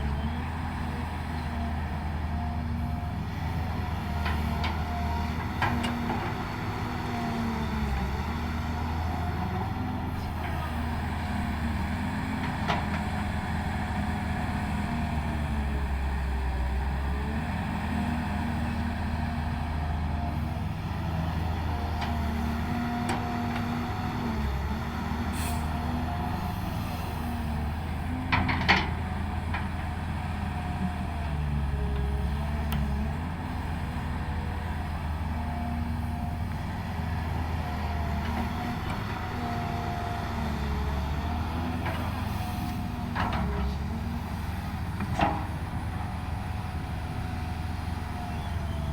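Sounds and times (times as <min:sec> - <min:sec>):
diesel engine of heavy machinery: 0:00.0 - 0:48.9.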